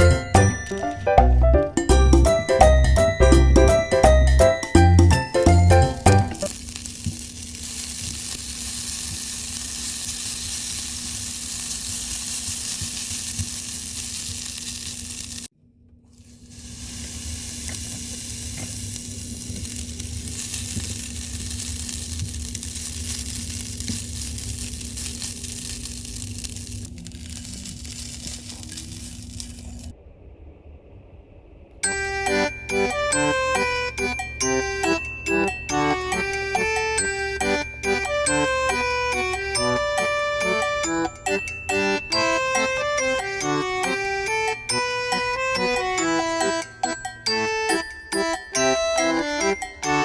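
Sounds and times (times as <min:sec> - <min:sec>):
food sizzling in a pan: 0:05.0 - 0:15.5, 0:16.2 - 0:29.9
low hum: 0:29.2 - 0:44.8.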